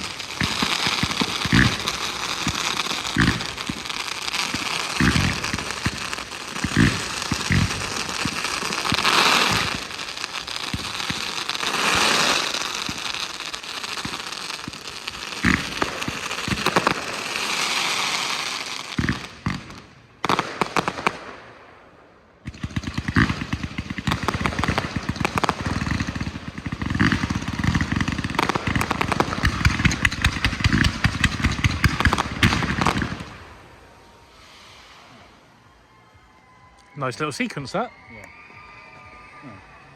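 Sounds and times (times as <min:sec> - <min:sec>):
fireworks crackling and fizzing: 0:00.0 - 0:39.9.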